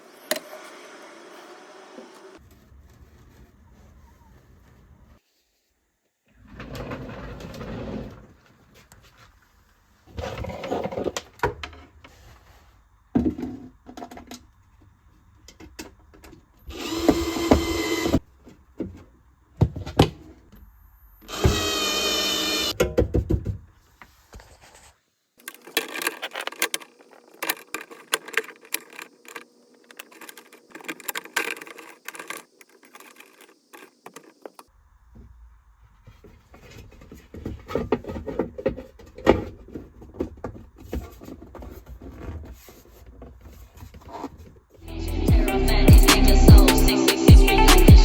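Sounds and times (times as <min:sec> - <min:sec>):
small hard parts clicking: 0:25.4 - 0:34.7.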